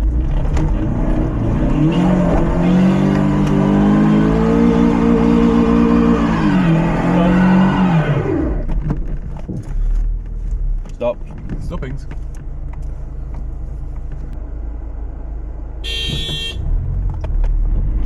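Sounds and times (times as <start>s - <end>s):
car engine revving hard: 0.2s - 8.7s.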